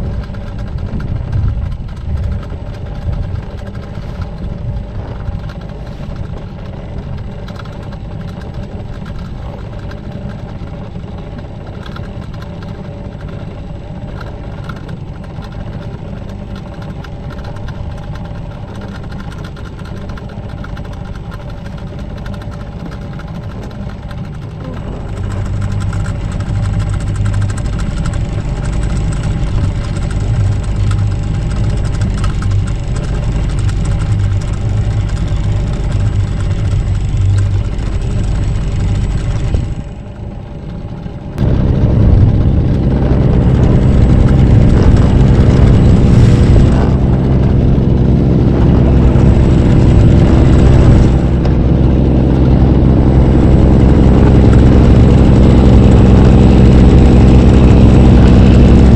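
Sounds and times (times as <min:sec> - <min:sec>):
outboard motor droning: 0:00.0 - 0:58.9.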